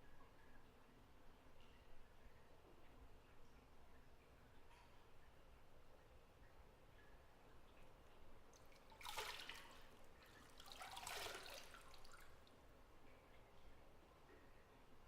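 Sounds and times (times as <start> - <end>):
bathwater splashes: 8.5 - 12.6.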